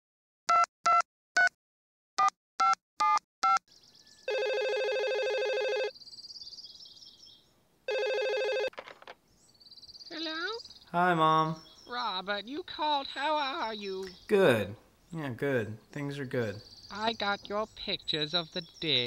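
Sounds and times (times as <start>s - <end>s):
keypad beeps: 0.5s - 1.5s, 2.2s - 3.6s
telephone line ringing: 4.3s - 5.9s, 7.9s - 8.7s.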